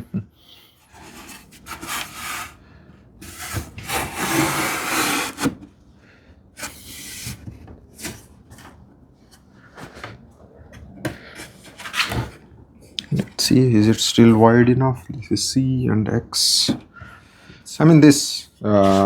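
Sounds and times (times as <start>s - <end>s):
hand plane shaving wood: 1.0s - 2.6s, 3.2s - 5.5s, 18.8s - 19.0s.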